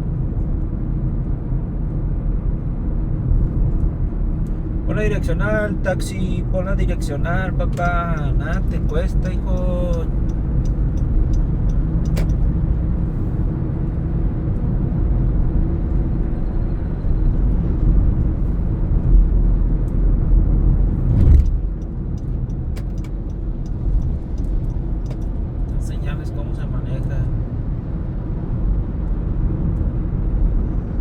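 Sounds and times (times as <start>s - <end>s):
car engine and tyre rumble: 0.0s - 31.0s
faint ticking: 7.6s - 12.4s.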